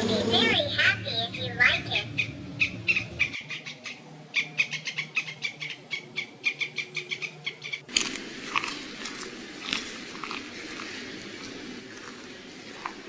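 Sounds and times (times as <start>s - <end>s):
animal chirping: 0.0s - 7.9s
broad noisy sound: 0.0s - 13.0s.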